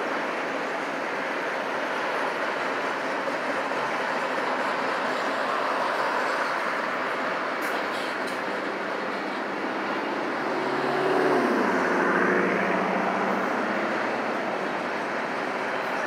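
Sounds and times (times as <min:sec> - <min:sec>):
freight train rolling past: 0:00.0 - 0:16.0
car passing by: 0:09.2 - 0:16.0.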